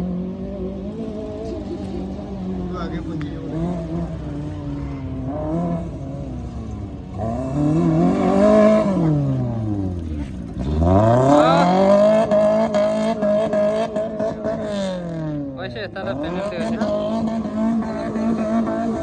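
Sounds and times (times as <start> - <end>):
car engine revving hard: 0.0 - 19.0.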